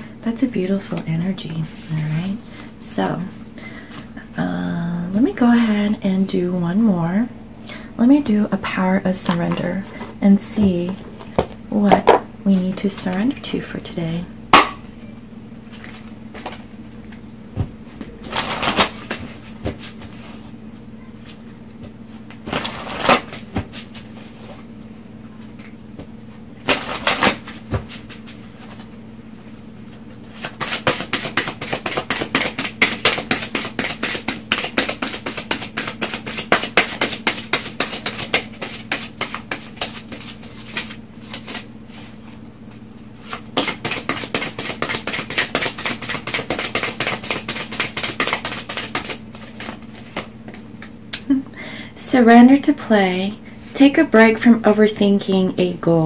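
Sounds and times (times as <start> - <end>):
cards being shuffled by hand: 30.3 - 41.7, 43.2 - 50.3.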